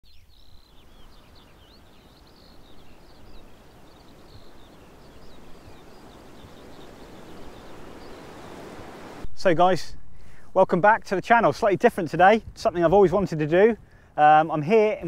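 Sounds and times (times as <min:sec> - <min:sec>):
small birds twittering: 0:00.0 - 0:09.2
background hiss: 0:00.1 - 0:15.0.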